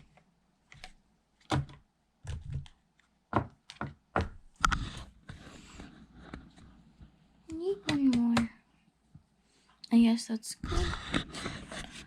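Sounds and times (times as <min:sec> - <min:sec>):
rustling and scraping: 0:04.6 - 0:07.1, 0:10.8 - 0:12.0.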